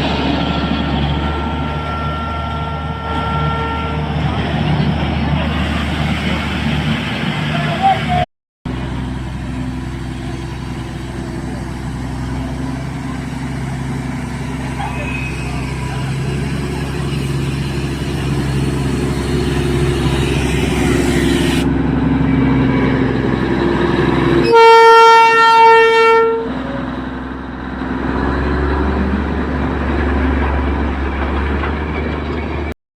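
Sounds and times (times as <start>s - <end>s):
running train noise: 0.0s - 32.7s
steam locomotive whistle: 1.2s - 4.4s, 24.3s - 26.8s.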